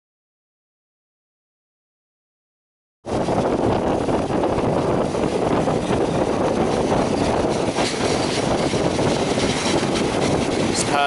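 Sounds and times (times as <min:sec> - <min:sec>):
rushing air: 0:03.1 - 0:11.0
train wheels on track: 0:03.5 - 0:11.0.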